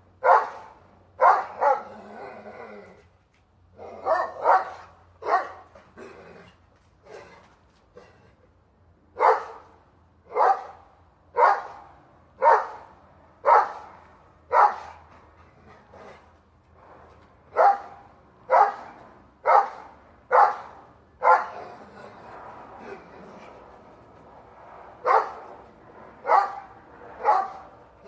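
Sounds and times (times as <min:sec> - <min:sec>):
dog barking: 0:00.2 - 0:01.9, 0:04.0 - 0:05.7, 0:09.2 - 0:09.7, 0:10.3 - 0:10.8, 0:11.4 - 0:13.9, 0:14.5 - 0:15.0, 0:17.5 - 0:21.6, 0:25.0 - 0:25.4, 0:26.2 - 0:27.6.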